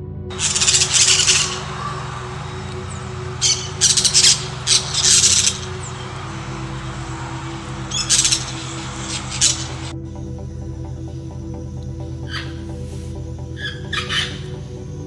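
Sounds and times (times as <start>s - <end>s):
parrots squawking: 0.3s - 9.9s, 12.2s - 12.9s, 13.6s - 14.8s.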